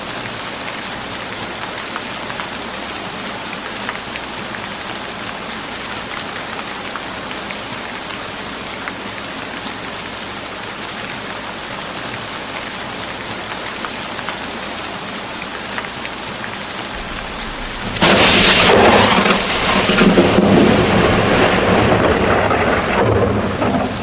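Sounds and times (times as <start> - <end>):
steady rain falling: 0.0 - 24.0
thunder crack and rumble: 16.9 - 24.0.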